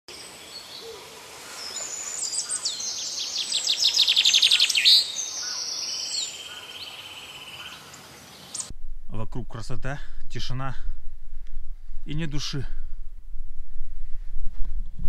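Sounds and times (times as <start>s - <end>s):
songbirds trilling: 0.1s - 8.7s.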